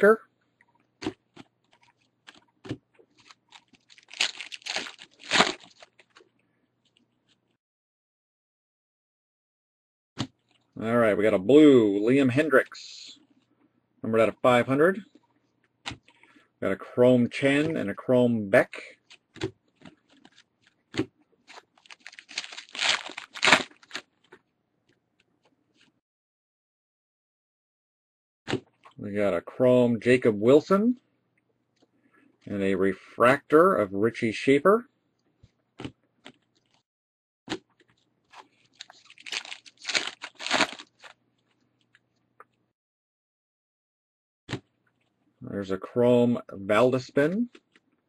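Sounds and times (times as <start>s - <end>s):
foil wrappers crinkling: 3.1s - 6.2s, 19.1s - 20.8s, 21.4s - 24.4s, 38.2s - 41.2s.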